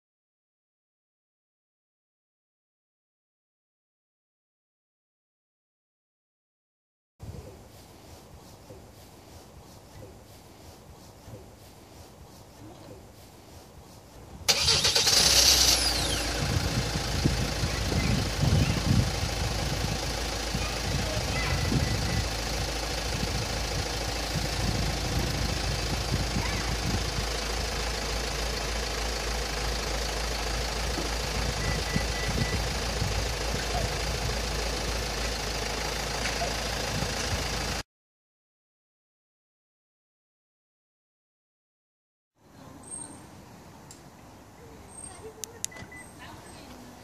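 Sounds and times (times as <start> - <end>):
starter motor cranking whine: 14.5 - 37.6
car engine idling: 14.5 - 37.8.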